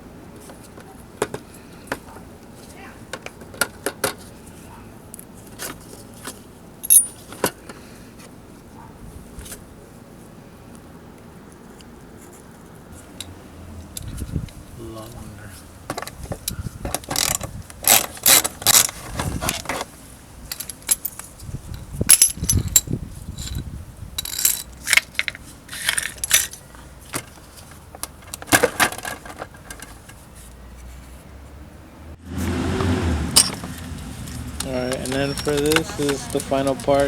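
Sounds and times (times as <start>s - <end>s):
metal tools clinking and rattling: 6.8s - 7.6s, 15.9s - 26.8s, 33.3s - 37.0s.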